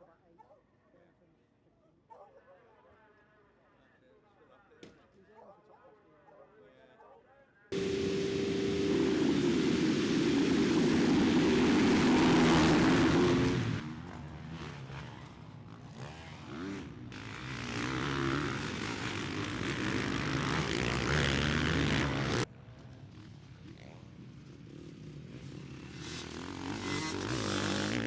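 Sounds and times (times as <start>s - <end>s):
motocross bike engines revving: 7.8s - 15.4s, 16.0s - 22.4s, 26.0s - 28.0s.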